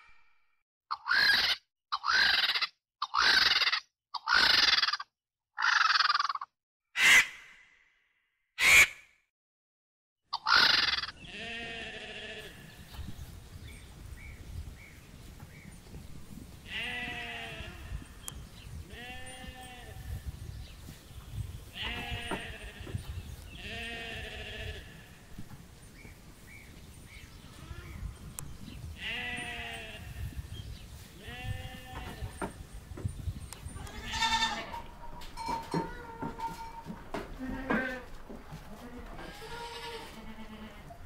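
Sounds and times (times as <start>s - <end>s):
sheep bleating: 11.2s - 12.7s, 21.8s - 25.2s, 33.8s - 34.9s, 37.4s - 38.1s, 38.8s - 41.0s.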